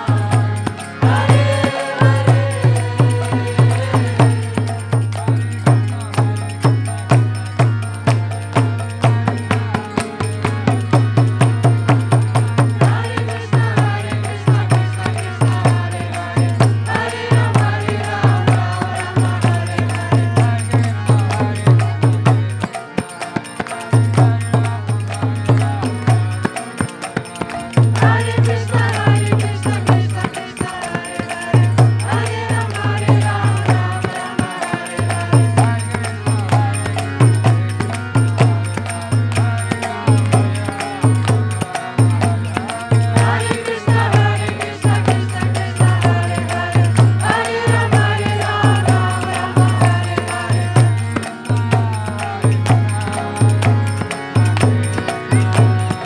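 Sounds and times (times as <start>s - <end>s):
voices chanting: 0.0s - 6.7s, 12.4s - 22.2s, 27.3s - 56.0s
drum beats: 0.0s - 9.4s.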